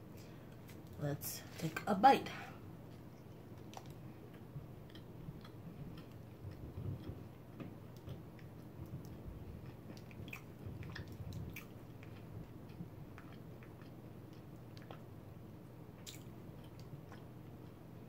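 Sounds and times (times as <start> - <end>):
faint steady hum: 0.0 - 18.0
wet chewing clicks and smacks: 2.9 - 15.2, 15.9 - 17.8.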